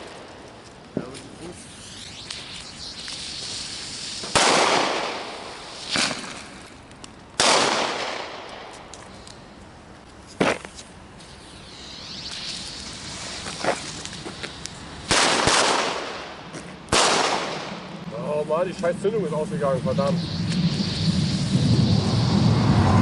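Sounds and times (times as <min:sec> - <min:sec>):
small firework pops: 0:00.0 - 0:09.4, 0:10.0 - 0:17.9
distant crackling: 0:00.0 - 0:09.5, 0:10.4 - 0:23.0
firecracker bangs with echo: 0:04.2 - 0:06.4, 0:07.4 - 0:08.8, 0:15.1 - 0:17.9.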